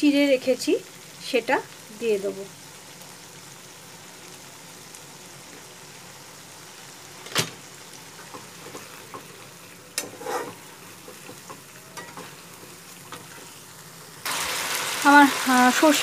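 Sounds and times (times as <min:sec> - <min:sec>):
paste sizzling in hot oil: 0:00.0 - 0:16.0
spatula scraping pan: 0:10.0 - 0:12.4.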